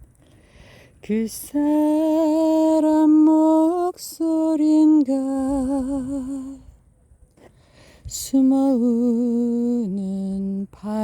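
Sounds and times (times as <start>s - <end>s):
person singing unaccompanied: 1.0s - 6.8s, 8.0s - 11.0s.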